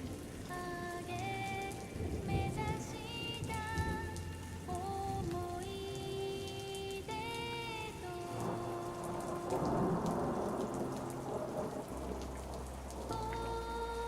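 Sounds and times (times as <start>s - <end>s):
rain pattering: 0.0s - 14.0s
soft melody of held notes: 0.0s - 14.0s
thunder rumble: 8.4s - 14.0s.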